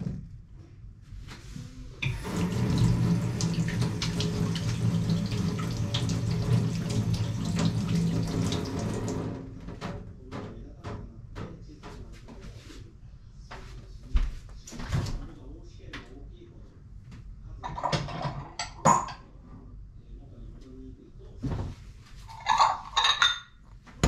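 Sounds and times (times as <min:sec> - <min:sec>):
tap running into sink: 0:02.0 - 0:10.0.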